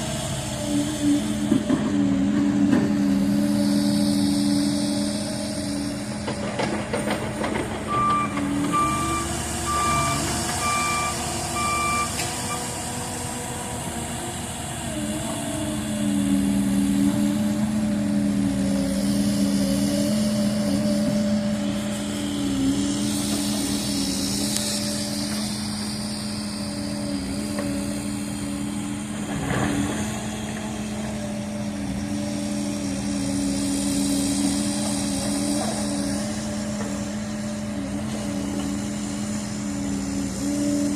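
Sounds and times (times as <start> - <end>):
diesel excavator engine running: 0.0 - 40.9
travel alarm beeping: 7.9 - 12.7.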